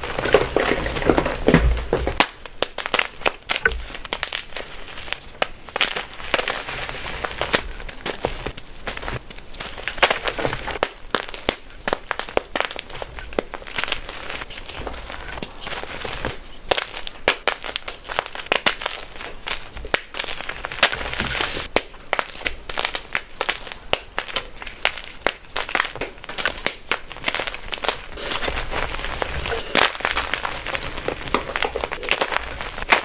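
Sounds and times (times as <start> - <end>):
chalk blocks crunching: 5.8 - 10.8, 20.6 - 21.7.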